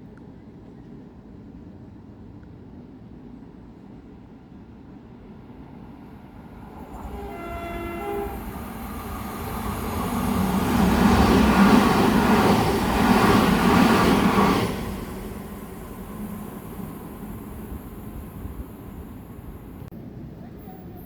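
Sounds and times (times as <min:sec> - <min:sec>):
train wheels on rails: 0:06.2 - 0:21.0
two-tone train horn: 0:06.8 - 0:08.9.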